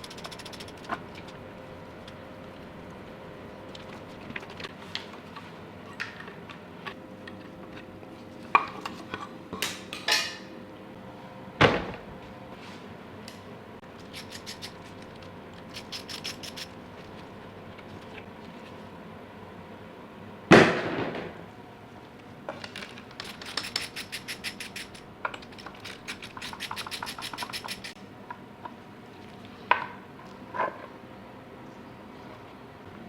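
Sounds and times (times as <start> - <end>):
quick ticks: 15.7 - 16.7, 23.2 - 28.0.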